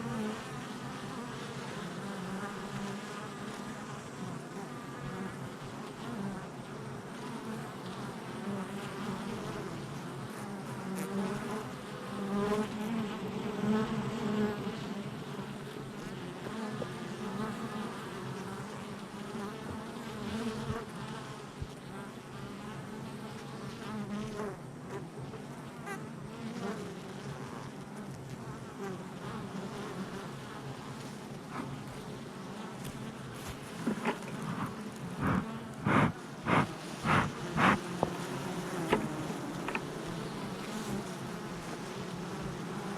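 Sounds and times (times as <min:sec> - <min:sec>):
bees buzzing: 0:00.0 - 0:24.5, 0:28.8 - 0:42.9.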